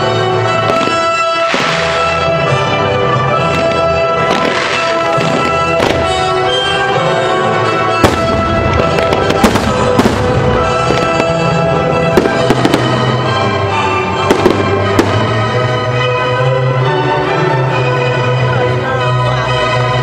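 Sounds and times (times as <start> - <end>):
orchestral music: 0.0 - 20.0
fireworks bangs: 0.6 - 6.9, 7.6 - 15.8.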